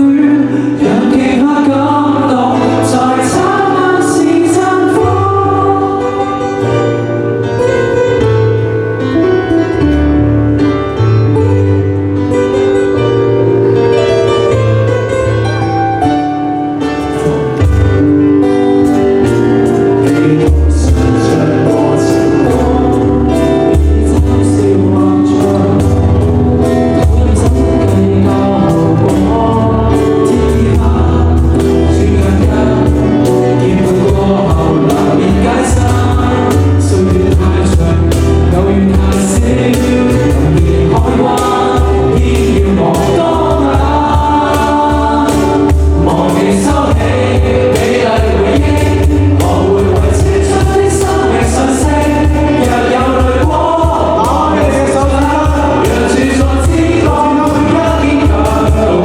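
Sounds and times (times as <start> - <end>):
voices singing together: 0.0 - 7.1, 19.7 - 59.0
live pop-rock band playing: 0.0 - 59.0
steady bass: 0.0 - 59.0.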